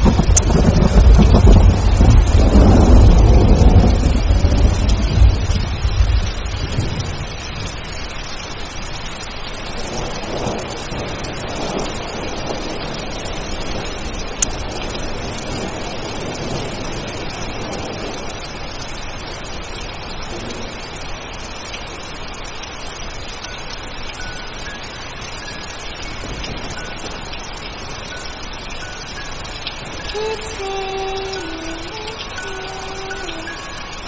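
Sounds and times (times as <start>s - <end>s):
low thunder rumble: 0.0s - 8.0s, 9.7s - 19.6s, 26.0s - 28.9s
steady rain: 0.0s - 34.0s.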